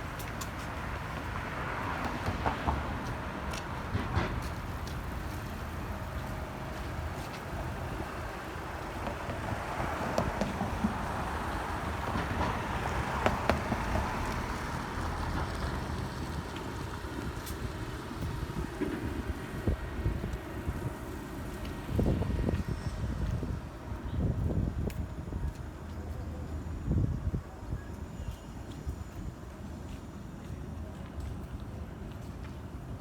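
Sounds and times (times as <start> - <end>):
road traffic going by: 0.0 - 33.0
wind buffeting microphone: 15.5 - 25.8.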